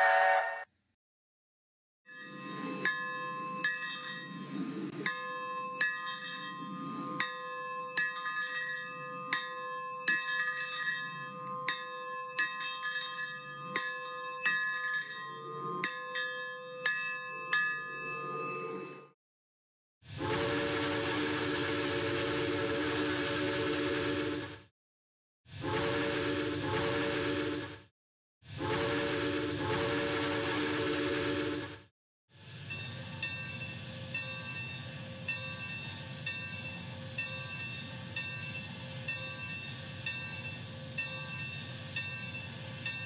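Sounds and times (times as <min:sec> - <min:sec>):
steam whistle chime: 0:00.0 - 0:00.7
locomotive bell ringing: 0:05.1 - 0:18.8, 0:32.6 - 0:43.0.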